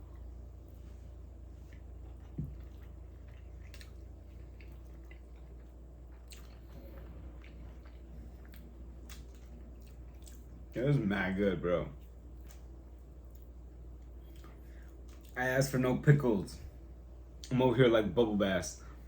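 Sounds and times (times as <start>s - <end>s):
person chewing food: 0.0s - 10.8s, 12.0s - 15.4s
steady low hum: 0.0s - 19.0s.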